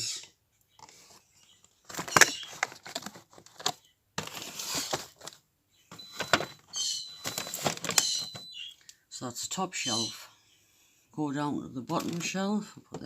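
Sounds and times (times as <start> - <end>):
plastic packaging clicking and crinkling: 1.6 - 9.0, 11.9 - 13.0.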